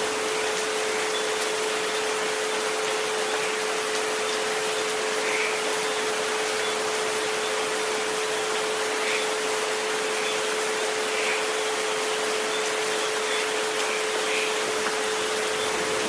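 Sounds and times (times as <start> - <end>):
rain hiss: 0.0 - 16.0.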